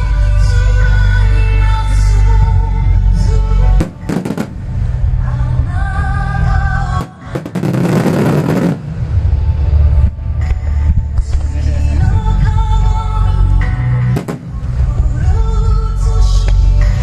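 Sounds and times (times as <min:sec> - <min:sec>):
music with singing over loudspeakers: 0:00.0 - 0:17.0
fireworks banging: 0:03.8 - 0:04.8, 0:07.0 - 0:09.3, 0:14.2 - 0:14.8
fireworks crackling: 0:03.8 - 0:04.9, 0:07.0 - 0:09.3.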